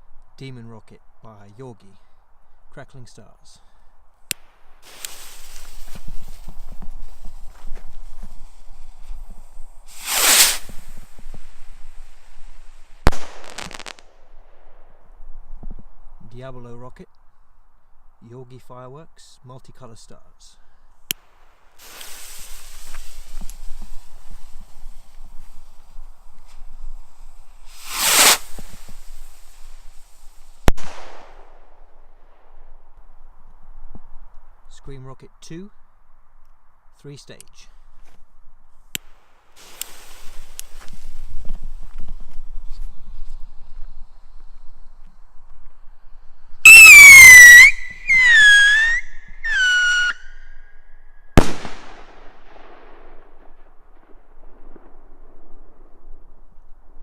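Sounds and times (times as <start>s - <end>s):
firework rocket whoosh: 4.8s - 15.2s, 21.7s - 31.7s, 39.5s - 50.2s
firework bang: 9.9s - 15.7s, 27.6s - 29.9s, 30.6s - 32.6s, 51.4s - 55.8s.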